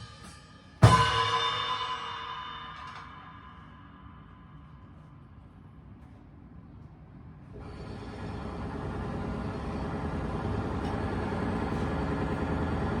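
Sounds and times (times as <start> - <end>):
vehicle engine rumble: 7.6 - 13.0.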